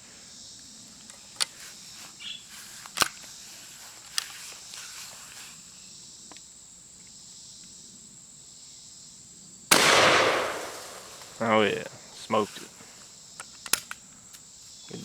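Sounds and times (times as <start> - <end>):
insects chorus: 0.0 - 15.0
shotgun action clicks: 9.7 - 11.4, 13.4 - 14.4.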